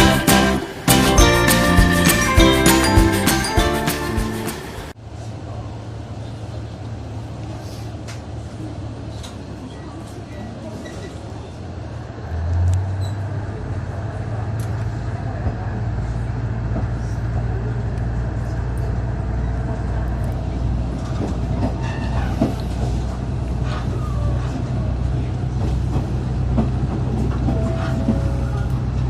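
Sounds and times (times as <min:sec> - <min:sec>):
diesel railcar engine drone: 0:00.0 - 0:29.0
train rolling noise: 0:00.0 - 0:29.0.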